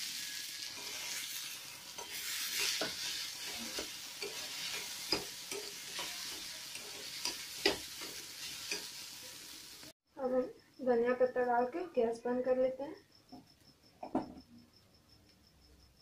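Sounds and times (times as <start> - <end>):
potato sizzling in hot oil: 0.0 - 10.0
metal spoon scraping and tapping pan: 1.9 - 9.0.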